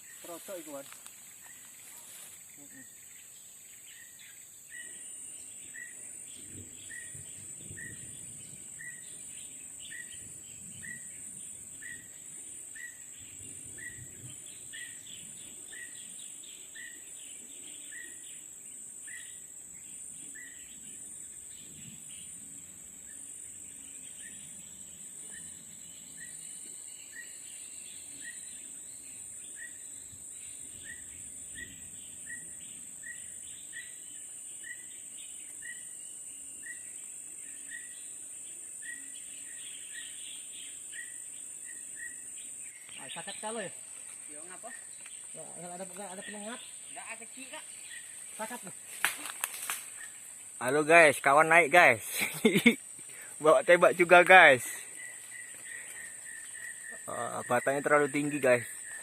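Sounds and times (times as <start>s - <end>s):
birds chirping: 0.0s - 59.0s
high-pitched insect drone: 0.0s - 59.0s.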